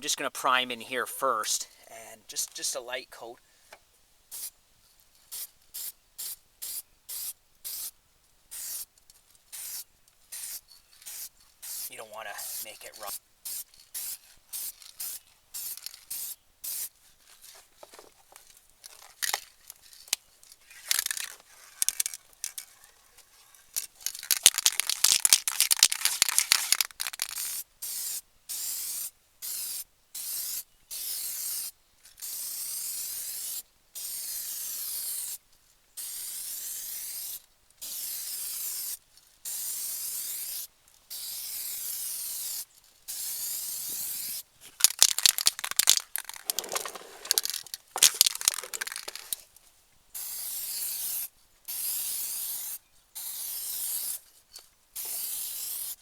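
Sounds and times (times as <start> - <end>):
aerosol can spraying: 8.5 - 8.9, 9.5 - 16.9, 24.1 - 35.4, 36.0 - 49.4, 50.2 - 54.2, 55.0 - 56.0.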